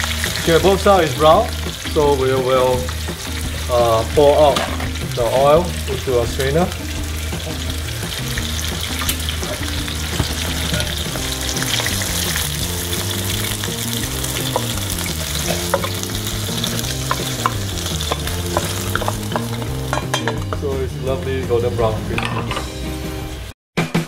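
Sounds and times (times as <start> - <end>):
fish sizzling in frying oil: 0.0 - 23.5
spatula scraping a pan: 6.9 - 20.6.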